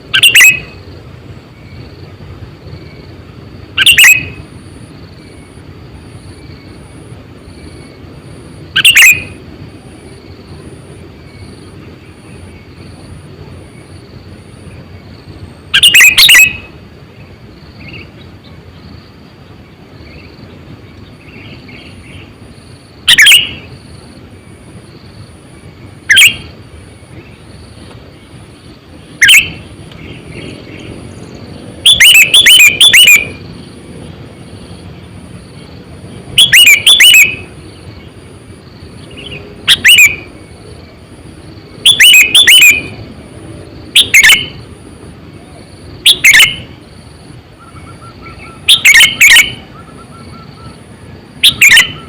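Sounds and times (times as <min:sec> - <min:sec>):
bulbul whistled calls: 0:00.0 - 0:00.9, 0:03.8 - 0:04.6, 0:08.7 - 0:09.4, 0:14.7 - 0:18.8, 0:23.0 - 0:24.0, 0:25.7 - 0:27.5, 0:29.2 - 0:33.8, 0:36.3 - 0:38.2, 0:39.0 - 0:40.6, 0:41.8 - 0:43.0, 0:43.9 - 0:44.7, 0:45.4 - 0:46.8, 0:47.6 - 0:52.0.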